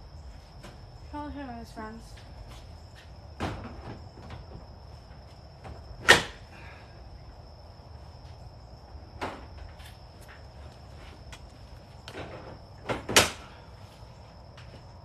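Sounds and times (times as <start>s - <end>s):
objects knocking and clunking: 3.3s - 4.8s.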